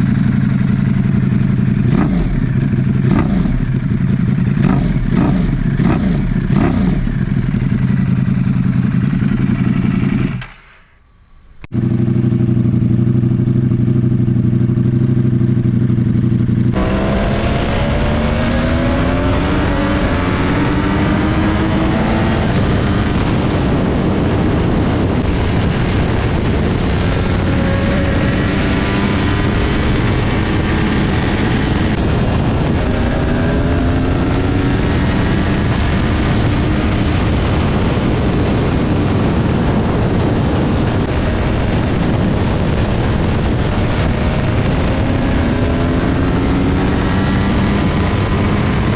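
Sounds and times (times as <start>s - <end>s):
motorcycle engine revving: 0.0s - 11.0s, 11.6s - 48.9s
motorcycle engine idling: 0.0s - 16.8s.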